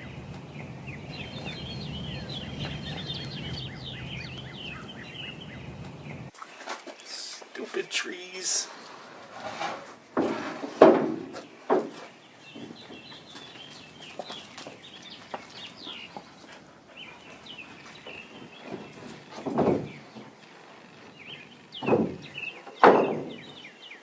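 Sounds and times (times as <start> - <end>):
faint bird calls: 0.0 - 6.3, 11.6 - 24.0
wooden boards knocking: 0.0 - 6.3, 10.2 - 13.3, 17.9 - 20.3, 21.0 - 23.6.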